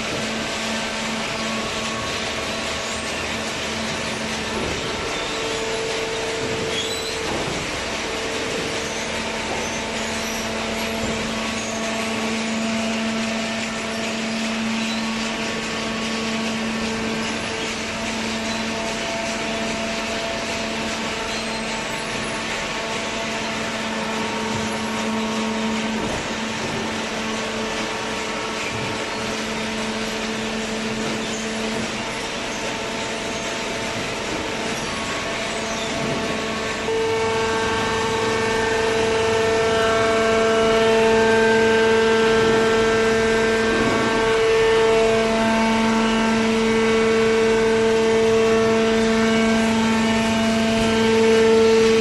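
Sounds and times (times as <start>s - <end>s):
baler machine hum: 0.0s - 52.0s.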